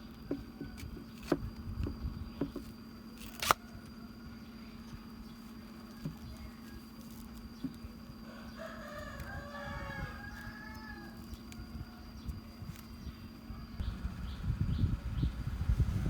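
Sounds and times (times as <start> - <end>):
low steady hum: 0.0 - 16.0
rooster crowing: 8.2 - 12.1.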